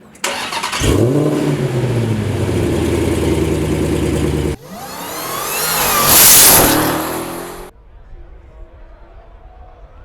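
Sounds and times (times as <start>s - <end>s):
car engine holding steady note: 0.1s - 7.7s
engine revving up: 0.2s - 7.7s.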